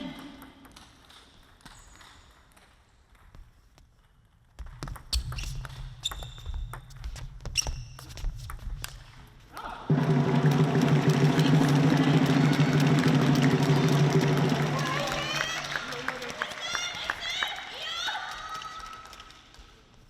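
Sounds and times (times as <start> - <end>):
crowd rumble: 9.8 - 16.3.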